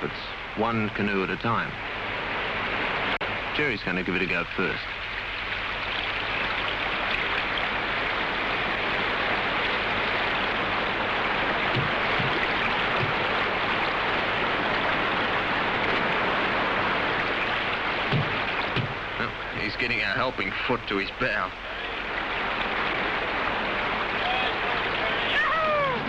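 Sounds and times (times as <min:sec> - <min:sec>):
river rapids rushing: 0:05.6 - 0:26.0.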